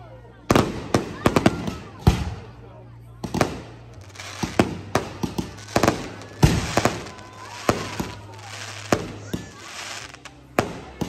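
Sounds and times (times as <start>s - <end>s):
fireworks crackling: 3.2s - 11.0s.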